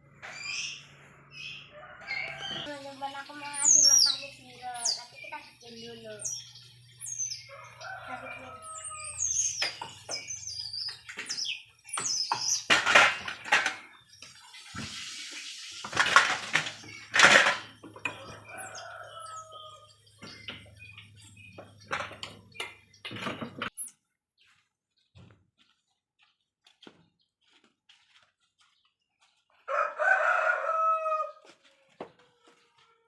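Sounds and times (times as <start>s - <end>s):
baby birds chirping: 0.2s - 12.7s, 18.1s - 23.9s.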